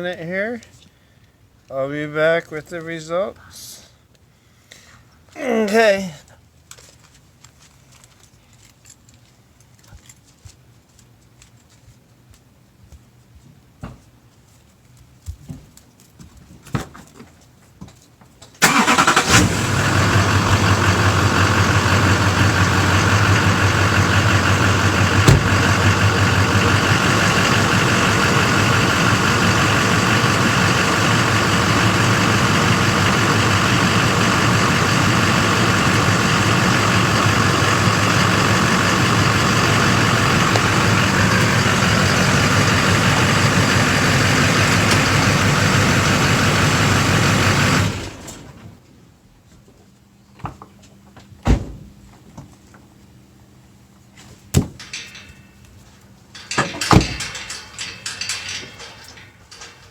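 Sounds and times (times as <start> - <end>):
truck engine starting and idling: 18.6 - 48.8, 56.4 - 59.9.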